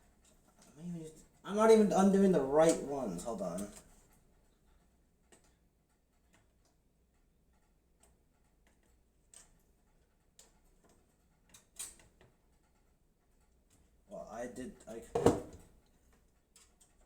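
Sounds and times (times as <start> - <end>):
small clicks of thumb screws: 3.7 - 13.9.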